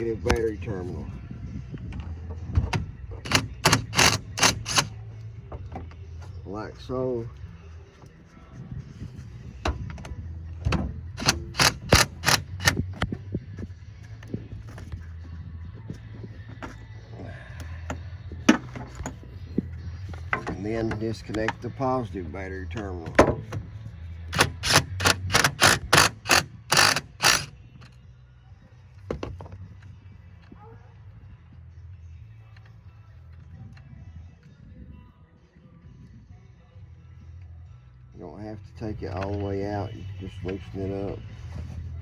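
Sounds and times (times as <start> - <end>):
sharp clicks: 3.2 - 4.9, 11.2 - 13.1
tools and cable clicking: 3.2 - 4.9, 9.7 - 13.2, 24.3 - 28.0
cordless power driver bursts: 24.4 - 27.5.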